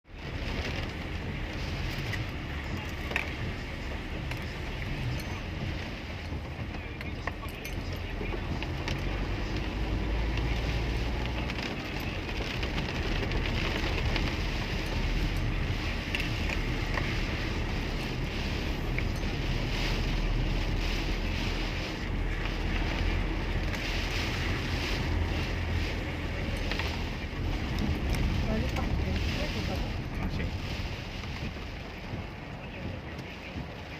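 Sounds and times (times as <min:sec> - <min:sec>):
car engine and road noise: 0:00.0 - 0:33.9.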